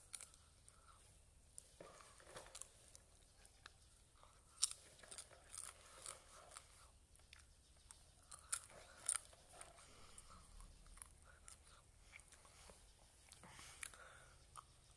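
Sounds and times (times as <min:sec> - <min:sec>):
person chewing popcorn: 0:00.0 - 0:14.9.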